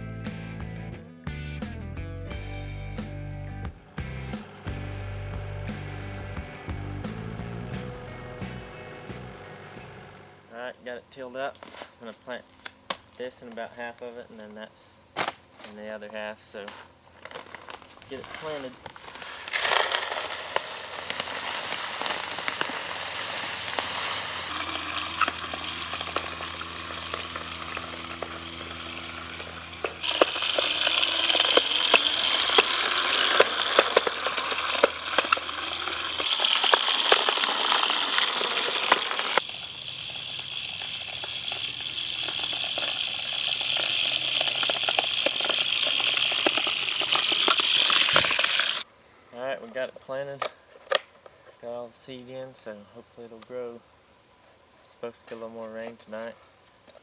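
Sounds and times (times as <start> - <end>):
seed spreading crackling hiss: 15.6 - 50.5.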